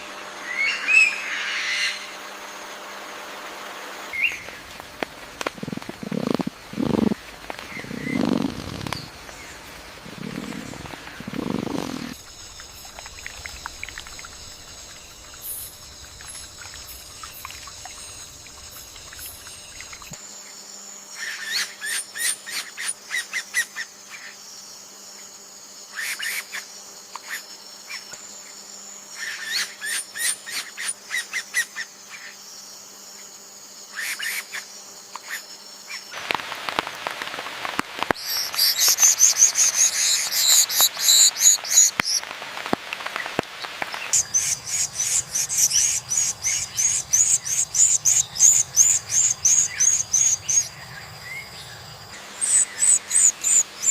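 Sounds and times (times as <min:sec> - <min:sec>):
high insect drone: 0:00.0 - 0:53.9
rapid chirping calls: 0:04.2 - 0:20.2, 0:38.2 - 0:42.2, 0:43.9 - 0:51.6, 0:52.2 - 0:53.9.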